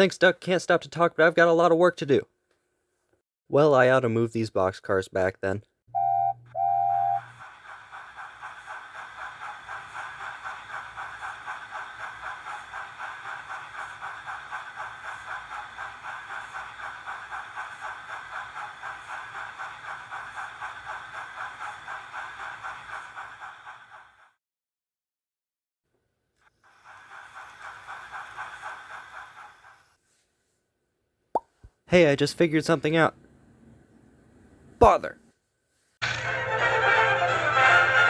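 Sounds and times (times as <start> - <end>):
whistle peeps: 6.0 - 7.3
steam locomotive chuffing: 7.2 - 24.4, 26.6 - 30.0.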